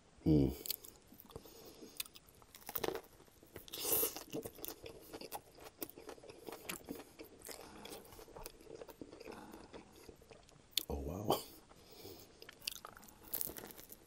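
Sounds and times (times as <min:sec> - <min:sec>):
chewing: 0:00.6 - 0:10.9, 0:11.6 - 0:14.0
crunching bites into bread: 0:02.0 - 0:08.0, 0:12.5 - 0:14.0.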